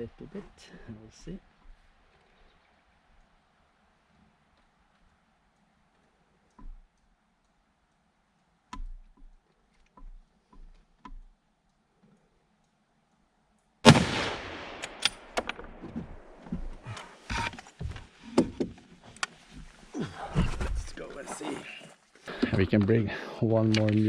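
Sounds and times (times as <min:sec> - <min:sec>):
rifle bolt clicks and knocks: 0:08.7 - 0:11.4, 0:14.8 - 0:17.7
loud rifle shot: 0:13.8 - 0:16.3
scope turret clicks: 0:14.5 - 0:16.4.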